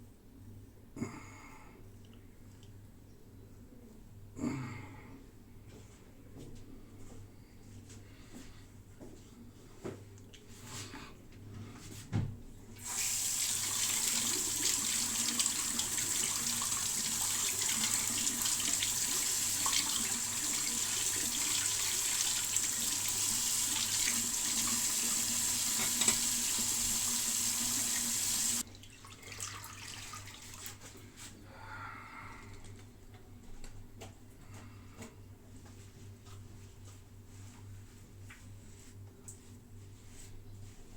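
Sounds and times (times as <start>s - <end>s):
tap water running into sink: 12.8s - 30.7s.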